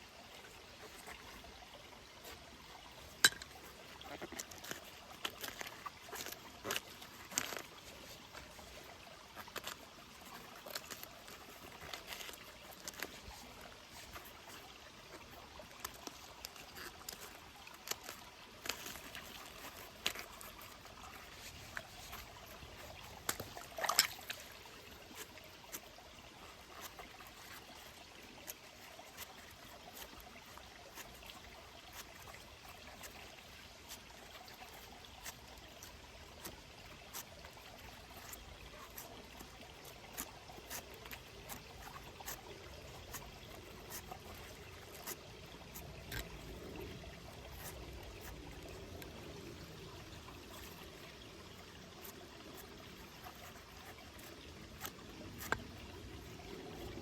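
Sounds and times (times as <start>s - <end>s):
faint water trickle: 0.0s - 57.0s
small irregular clicks: 0.0s - 57.0s.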